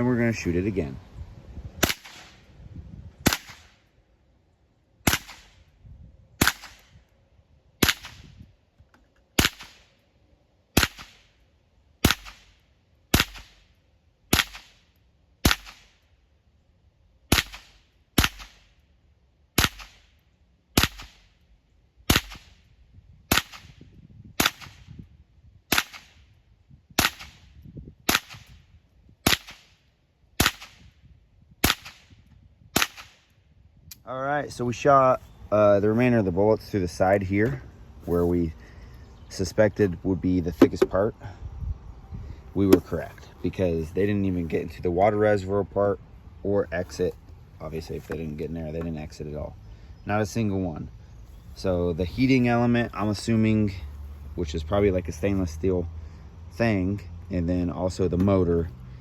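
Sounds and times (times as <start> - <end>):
rifle shots cracking: 1.8 - 2.4, 3.2 - 3.8, 5.0 - 5.6, 6.4 - 6.9, 7.8 - 8.3, 9.4 - 10.0, 10.8 - 11.4, 12.0 - 13.7, 14.3 - 14.8, 15.4 - 16.0, 20.8 - 21.3, 25.7 - 26.2, 28.1 - 28.5, 29.2 - 29.8, 30.4 - 30.8, 31.6 - 32.1, 32.8 - 33.3.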